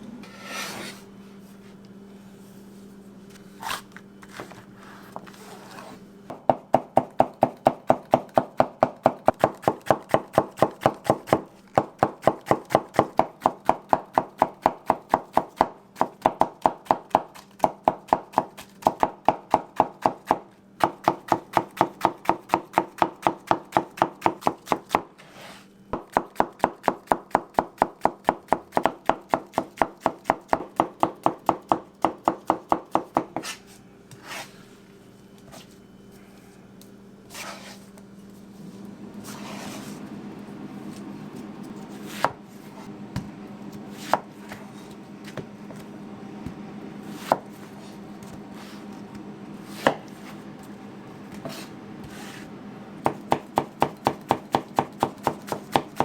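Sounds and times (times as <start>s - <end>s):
chopping on a cutting board: 6.3s - 25.1s, 25.9s - 33.6s, 42.0s - 42.4s, 44.0s - 44.6s, 47.1s - 48.4s, 49.7s - 50.3s, 53.0s - 56.0s.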